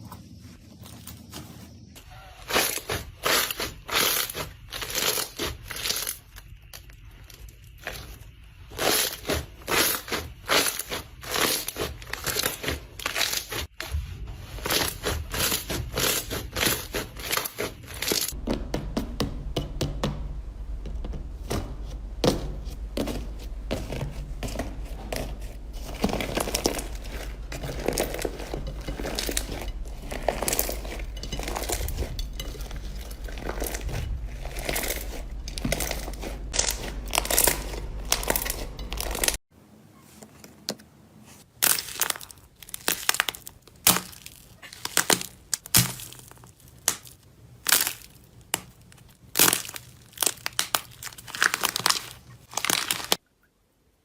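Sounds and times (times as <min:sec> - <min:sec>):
slime crackling and popping: 0:02.4 - 0:13.9, 0:14.6 - 0:18.4, 0:25.8 - 0:39.4, 0:41.6 - 0:53.2.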